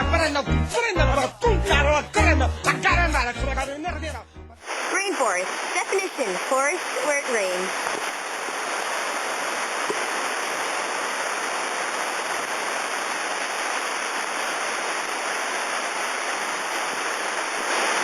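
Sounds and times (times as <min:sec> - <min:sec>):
steady rain falling: 0:04.6 - 0:18.0.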